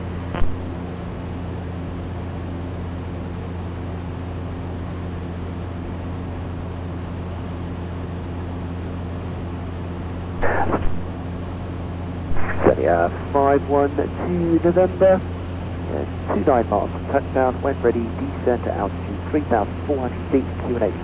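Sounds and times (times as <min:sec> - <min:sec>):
light aircraft engine droning: 0:00.0 - 0:21.0
short burst of voice: 0:10.4 - 0:11.0.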